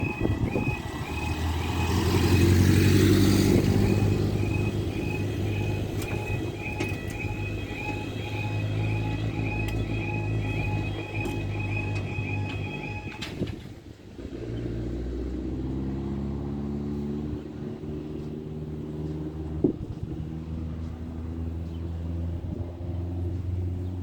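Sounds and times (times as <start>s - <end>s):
level crossing warning alarm: 0.0s - 13.6s
road vehicle engines humming: 0.0s - 24.0s.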